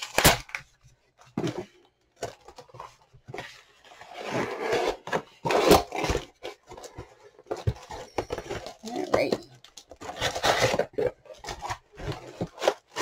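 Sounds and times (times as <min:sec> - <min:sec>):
cardboard rubbing and scraping: 0:03.3 - 0:07.0.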